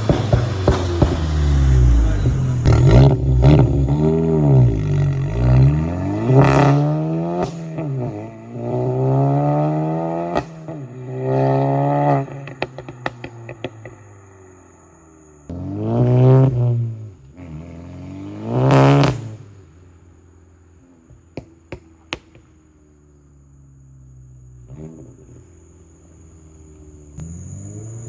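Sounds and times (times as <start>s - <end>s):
exhaust pops and crackles: 0.0s - 4.0s, 12.4s - 14.0s, 21.0s - 22.7s
car engine revving: 0.0s - 22.6s, 23.2s - 28.0s.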